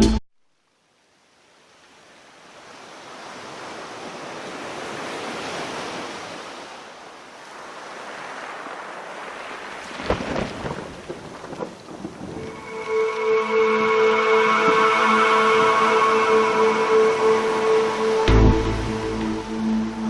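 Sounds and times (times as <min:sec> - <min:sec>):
wind: 0:00.4 - 0:20.0
heavy rain: 0:07.2 - 0:20.0.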